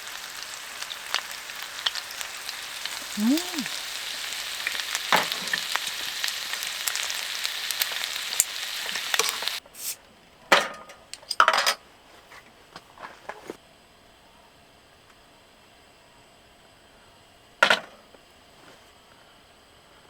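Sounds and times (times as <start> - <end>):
food sizzling with pops: 0.0 - 10.0.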